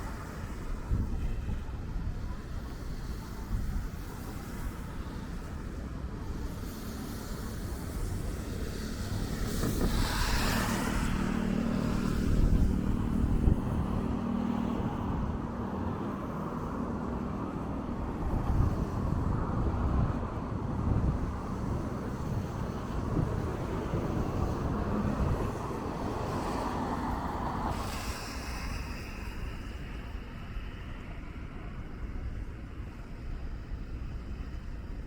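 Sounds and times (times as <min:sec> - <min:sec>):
vehicle tyre hiss on wet road: 0:00.0 - 0:35.0.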